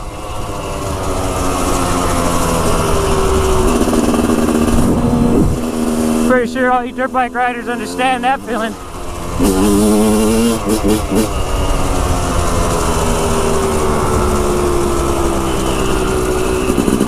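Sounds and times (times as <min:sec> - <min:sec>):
dirt bike engine revving: 0:00.0 - 0:17.0
wind noise: 0:02.5 - 0:06.3.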